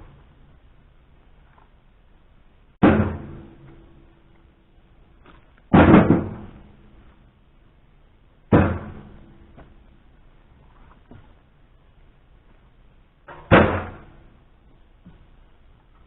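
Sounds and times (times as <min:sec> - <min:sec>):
heavy knocks of firewood: 0:02.8 - 0:03.8, 0:05.7 - 0:06.7, 0:08.5 - 0:09.8, 0:13.3 - 0:14.2.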